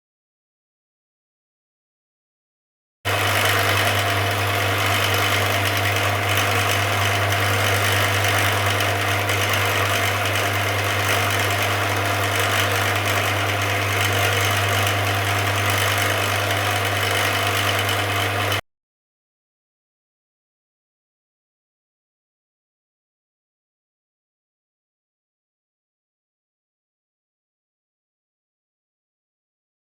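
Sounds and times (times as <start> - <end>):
machine running with low hum: 3.1 - 18.6.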